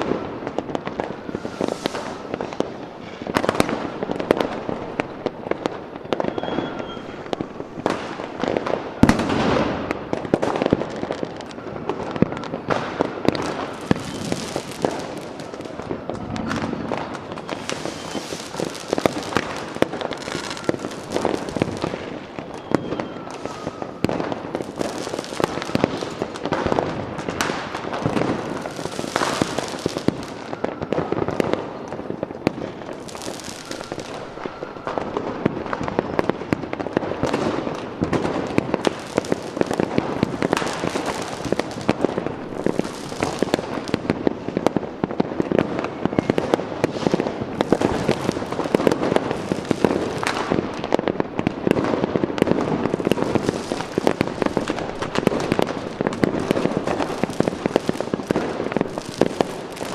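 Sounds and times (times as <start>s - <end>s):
fireworks bangs and crackles: 0.0s - 59.9s
firework hiss: 1.1s - 3.8s, 13.7s - 15.6s, 16.5s - 22.2s, 27.4s - 30.4s.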